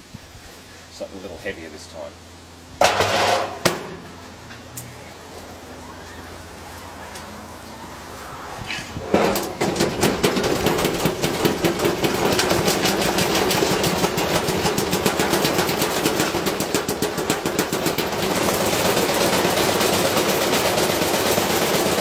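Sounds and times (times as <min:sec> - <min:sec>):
washing machine motor running: 0:09.0 - 0:22.0
object clattering in washing machine drum: 0:09.1 - 0:22.0.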